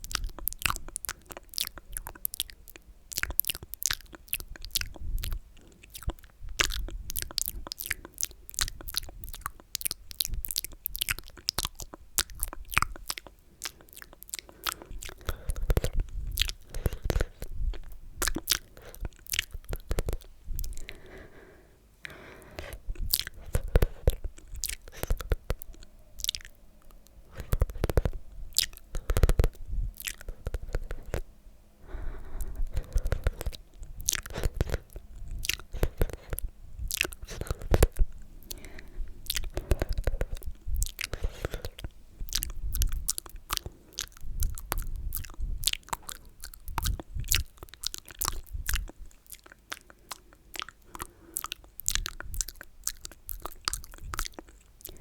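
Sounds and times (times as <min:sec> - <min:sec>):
wet mouth sounds: 0:00.0 - 0:55.0.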